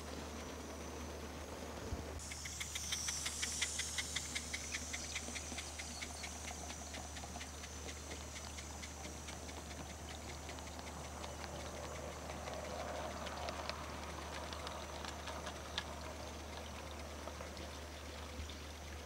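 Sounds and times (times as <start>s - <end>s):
sharp steam exhaust beats: 2.1s - 13.0s
steam hiss: 2.2s - 8.7s.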